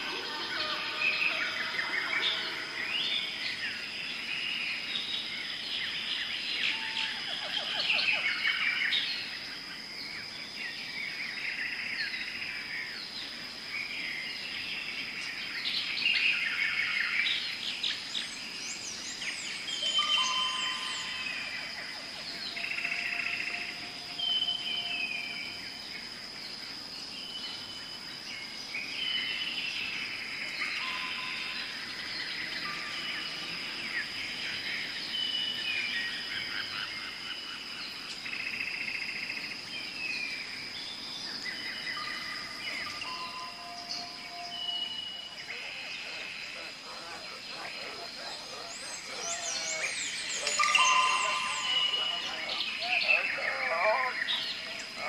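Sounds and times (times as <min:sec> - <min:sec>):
weaver birds chattering: 0:11.0 - 0:55.0
steady high-pitched tone: 0:19.9 - 0:25.4, 0:42.8 - 0:46.8, 0:49.5 - 0:53.5.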